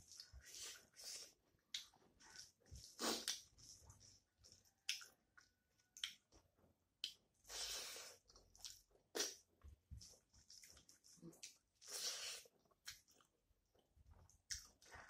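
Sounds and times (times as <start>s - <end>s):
lip smacks: 2.9s - 3.5s
wet chewing clicks: 4.4s - 6.4s, 12.6s - 15.0s.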